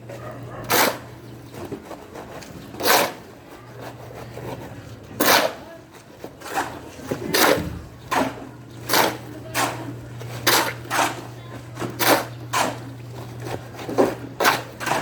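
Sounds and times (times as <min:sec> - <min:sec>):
rasping scraping strokes: 0:00.7 - 0:15.0
steady low hum: 0:06.8 - 0:08.8.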